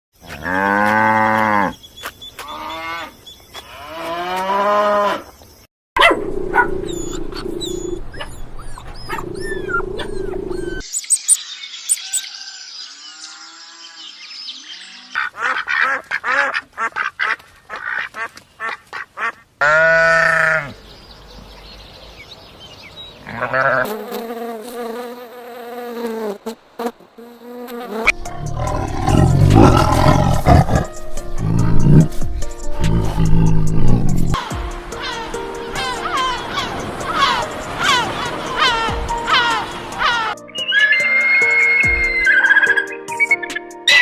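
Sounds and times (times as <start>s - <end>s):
high animal chirping: 6.5s - 15.7s, 38.6s - 44.0s
loud animal call: 14.7s - 20.8s, 23.2s - 23.9s, 28.2s - 42.9s.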